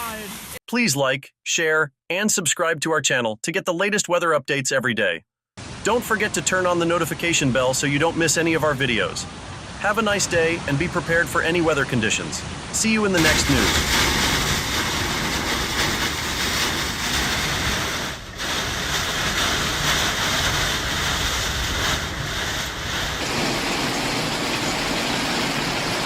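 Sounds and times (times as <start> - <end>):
heavy rain: 5.6 - 26.0
storm wind: 12.4 - 26.0.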